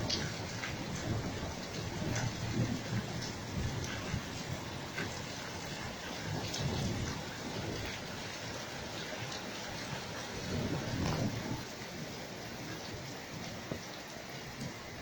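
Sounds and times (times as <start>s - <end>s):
thunder rolling: 0.0s - 8.6s, 9.8s - 11.7s
steady rain: 0.0s - 15.0s.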